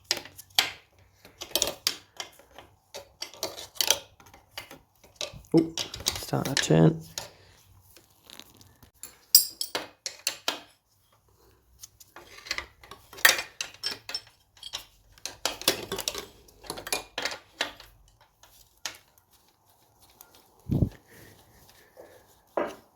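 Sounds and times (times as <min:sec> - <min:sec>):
hand tools clinking on metal: 0:09.0 - 0:10.6, 0:12.5 - 0:18.2.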